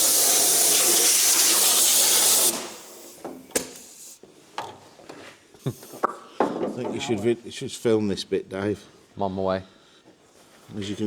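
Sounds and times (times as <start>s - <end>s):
compressed air blow gun hissing: 0.0s - 3.2s.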